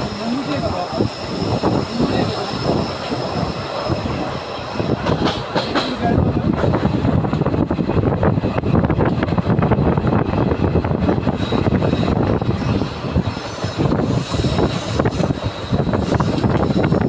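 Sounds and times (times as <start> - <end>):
high wheel squeal: 0.0 - 5.1, 11.3 - 17.0
train wheels rumbling on rail: 0.0 - 17.0.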